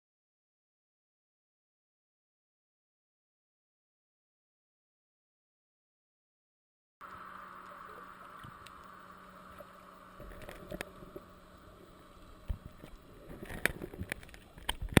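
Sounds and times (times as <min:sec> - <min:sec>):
muffled water: 0:07.0 - 0:15.0
sharp clicks and knocks: 0:12.4 - 0:15.0.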